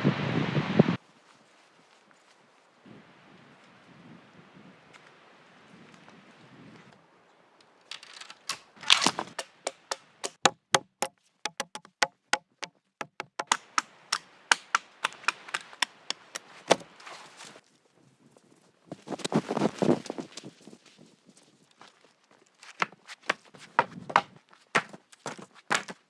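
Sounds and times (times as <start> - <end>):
sharp irregular knocks and cracks: 7.9 - 17.6, 22.7 - 26.0.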